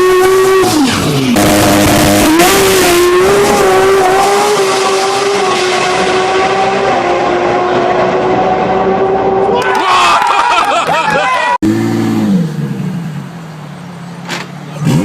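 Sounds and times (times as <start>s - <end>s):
car engine revving high: 0.0s - 9.6s.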